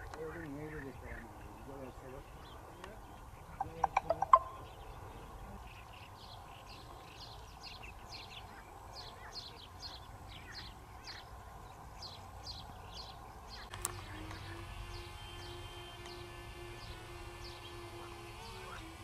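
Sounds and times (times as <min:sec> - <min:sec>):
small bird chirping: 0:00.3 - 0:18.8.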